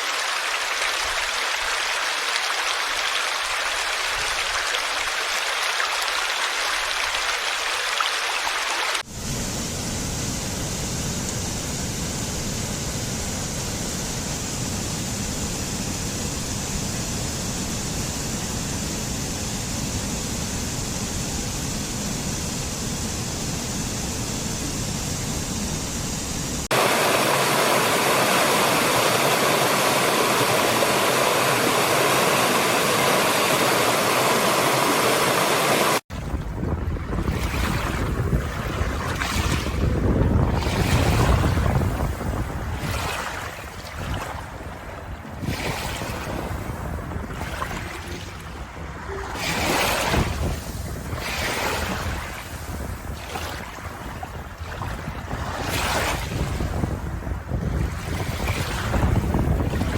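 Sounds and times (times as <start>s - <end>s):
rushing water: 0.0s - 9.1s, 26.6s - 59.9s.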